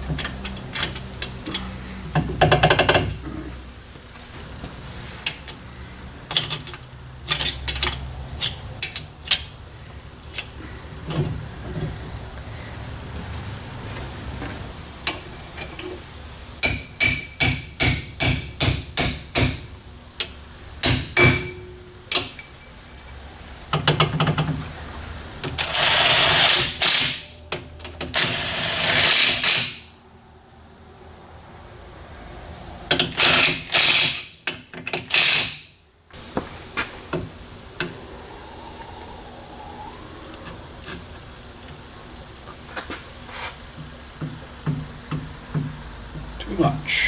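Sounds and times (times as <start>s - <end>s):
loud noisy tool bursts: 25.6s - 27.3s, 28.1s - 29.9s.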